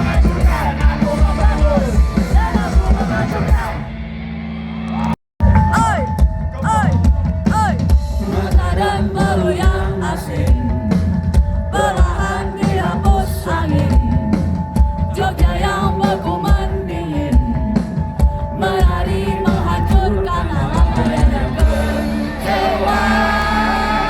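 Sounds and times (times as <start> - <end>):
drum kit beat: 0.0 - 3.8, 5.4 - 24.0
rock band playing live: 0.0 - 13.3, 18.8 - 24.0
person singing: 18.5 - 24.0.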